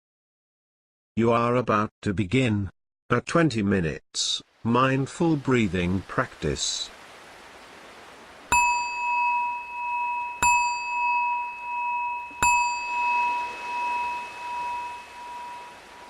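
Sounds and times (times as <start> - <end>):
meditation bell ringing: 8.5 - 16.0.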